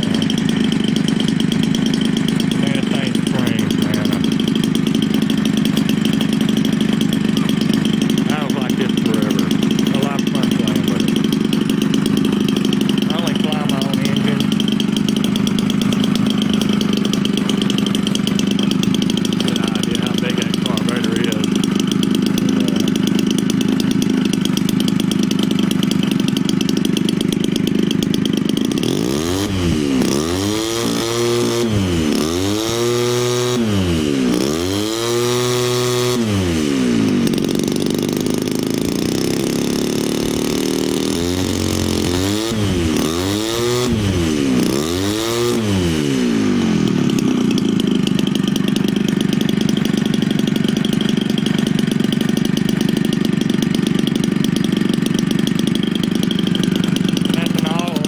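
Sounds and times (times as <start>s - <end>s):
two-stroke engine revving: 0.0s - 58.0s.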